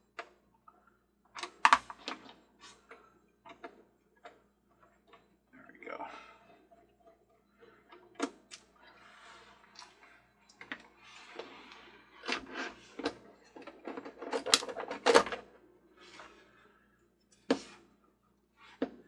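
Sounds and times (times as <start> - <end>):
small plastic parts clicking: 12.2 - 15.4.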